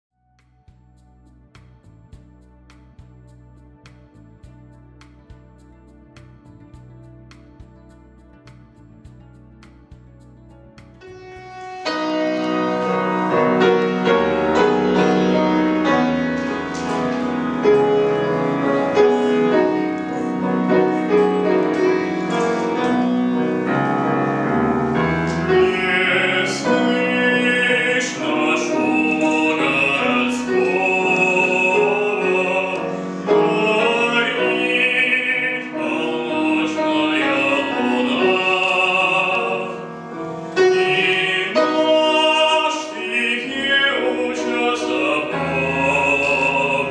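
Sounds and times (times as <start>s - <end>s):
grand piano playing: 0.2s - 46.9s
man singing operatically: 20.8s - 23.6s, 25.3s - 46.9s.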